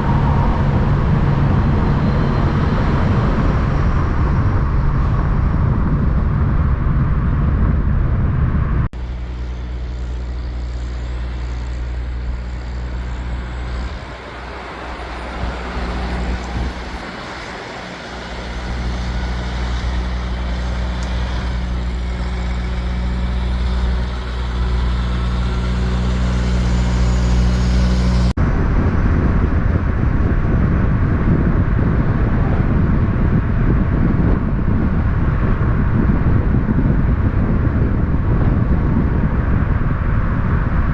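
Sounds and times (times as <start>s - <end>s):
diesel truck engine running: 0.0s - 28.8s
rushing traffic noise: 0.0s - 40.9s.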